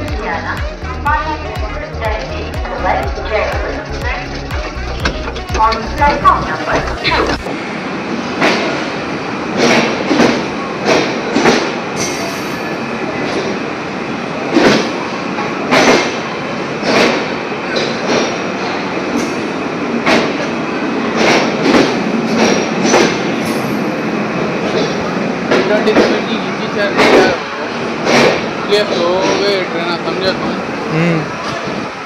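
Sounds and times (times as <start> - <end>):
train running rumble: 0.0 - 30.8
train wheels clacking over rail joints: 3.8 - 7.5, 8.4 - 8.9, 9.5 - 12.7, 14.5 - 23.9, 24.6 - 29.7.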